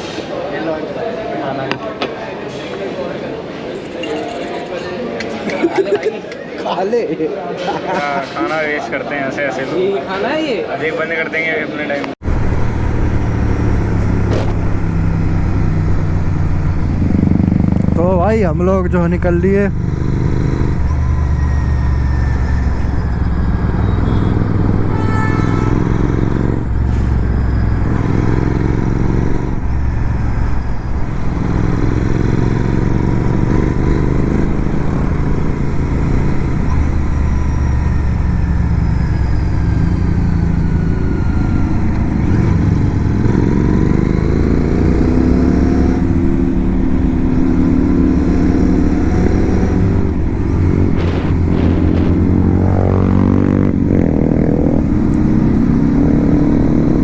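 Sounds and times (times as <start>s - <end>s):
motorcycle engine accelerating: 12.2s - 57.0s.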